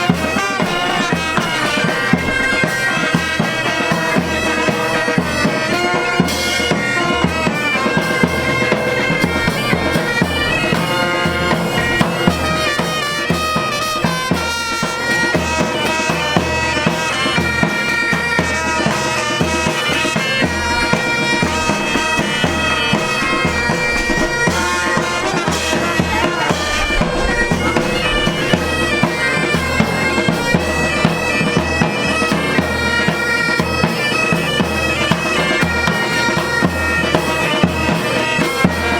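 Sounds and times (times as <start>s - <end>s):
bagpipes melody with drones: 0.0s - 38.9s
marching drumbeat: 0.0s - 38.9s.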